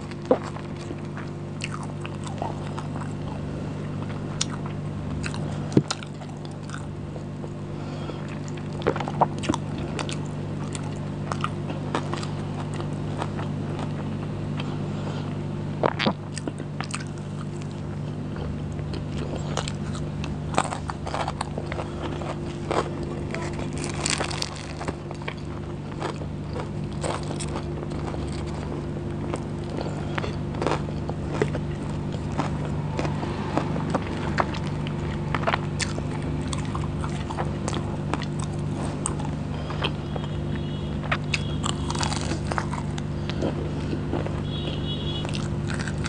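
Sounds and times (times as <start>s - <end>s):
chewing and biting food: 0.0s - 46.0s
steady low hum: 0.0s - 46.0s.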